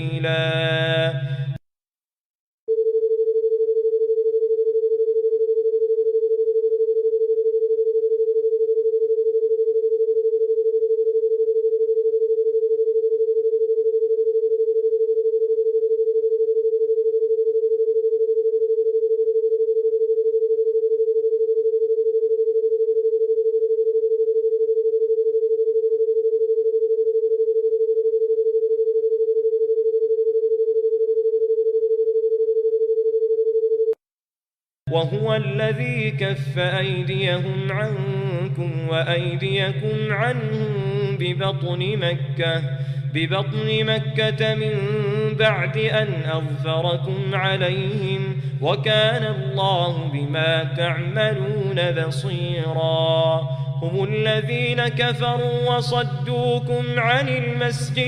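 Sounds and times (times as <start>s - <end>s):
steady electronic pure tone: 0.0s - 1.6s, 34.9s - 58.0s.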